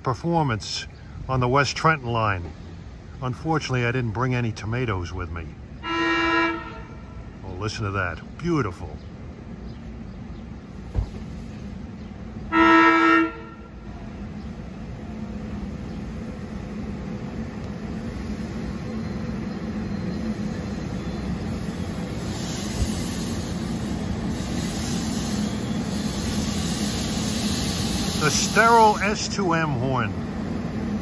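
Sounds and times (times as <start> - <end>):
train running noise: 0.0 - 31.0
train air horn blast: 5.8 - 7.3, 12.5 - 13.8.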